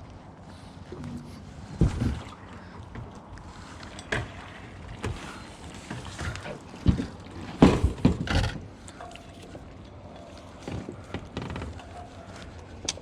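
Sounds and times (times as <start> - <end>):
dull knocks and thumps: 1.7 - 2.3, 6.0 - 8.7.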